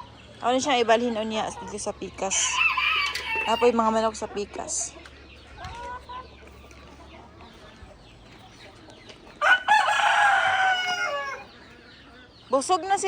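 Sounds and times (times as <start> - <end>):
chickens clucking: 0.0 - 13.0
rooster crowing: 2.3 - 3.8, 9.4 - 11.6.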